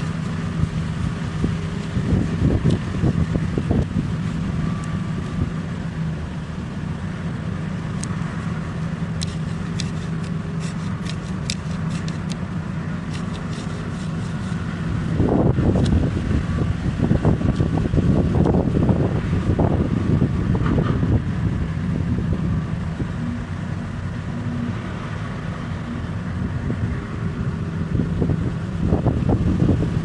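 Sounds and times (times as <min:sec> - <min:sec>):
large diesel engine droning: 0:00.0 - 0:30.0
sharp ticks: 0:09.2 - 0:12.4.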